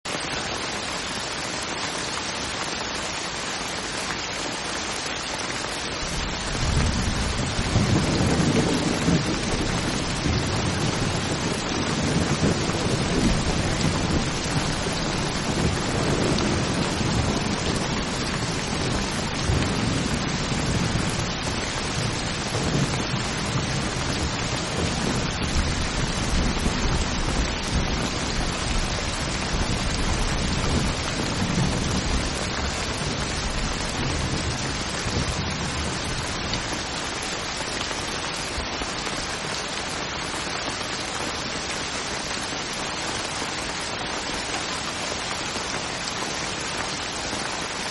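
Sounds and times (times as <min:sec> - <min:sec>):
heavy rain on a tin roof: 0:00.0 - 0:47.9
low rolling thunder: 0:06.1 - 0:36.5.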